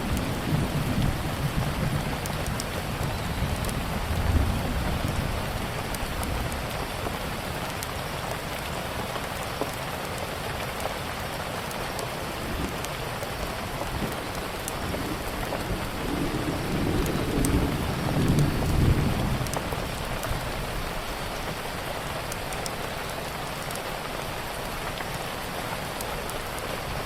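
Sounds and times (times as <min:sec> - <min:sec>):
low thunder rumble: 0:00.0 - 0:06.7, 0:13.9 - 0:21.0
steady rain: 0:00.0 - 0:27.0.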